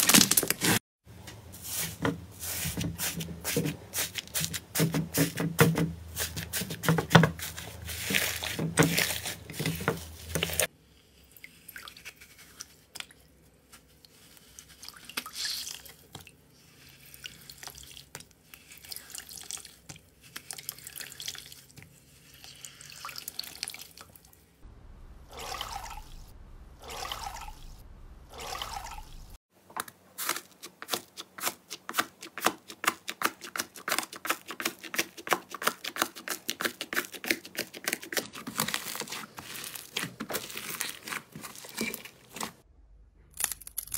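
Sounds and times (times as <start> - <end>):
wet slime squishes: 30.2 - 42.6.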